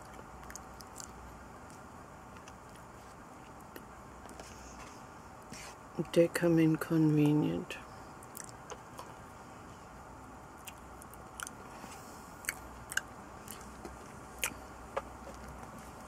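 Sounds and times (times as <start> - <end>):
person chewing: 0.0 - 3.9, 8.2 - 9.2, 10.6 - 14.6
wet mouth clicks: 8.2 - 9.1, 10.6 - 11.6, 12.4 - 14.6.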